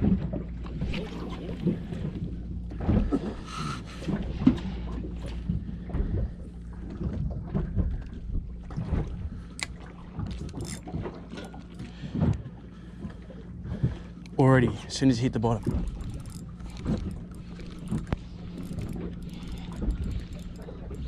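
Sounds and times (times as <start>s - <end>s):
steady low hum: 0.0s - 21.0s
water slapping boat hull: 0.0s - 21.0s.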